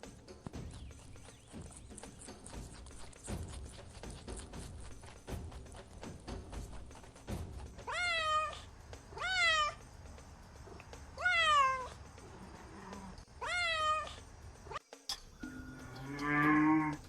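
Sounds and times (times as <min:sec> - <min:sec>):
cat meowing: 0:07.8 - 0:09.8, 0:11.2 - 0:14.8.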